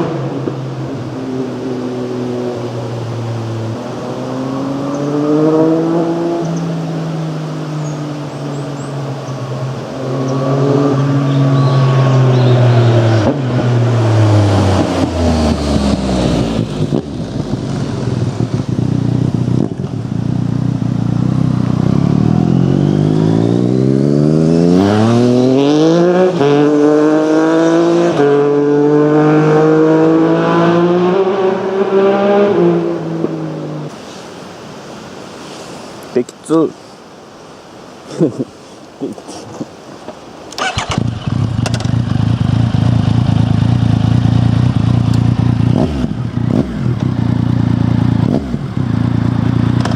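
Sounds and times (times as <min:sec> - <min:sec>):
motorcycle engine accelerating: 0:03.3 - 0:33.9, 0:40.6 - 0:49.9.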